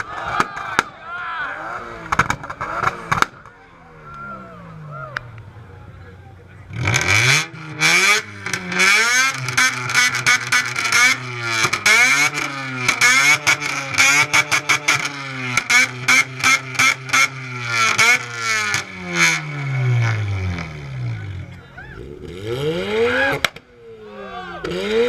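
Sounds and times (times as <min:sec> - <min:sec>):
car engine revving: 0:01.4 - 0:25.0
sharp exhaust pops: 0:02.0 - 0:03.6, 0:06.8 - 0:19.4.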